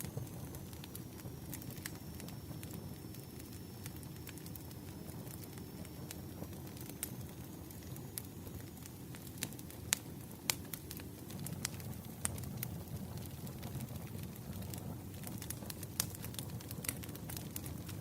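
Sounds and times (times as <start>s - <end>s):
fire popping and snapping: 0.0s - 18.0s
fire rumbling: 0.0s - 18.0s.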